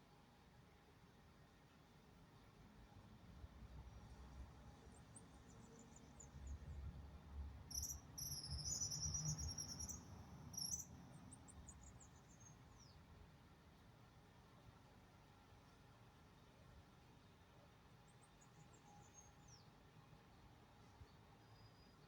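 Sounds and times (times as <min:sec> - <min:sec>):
small bird trilling: 0:07.7 - 0:10.0, 0:10.6 - 0:10.8
bird chirps: 0:07.7 - 0:10.9.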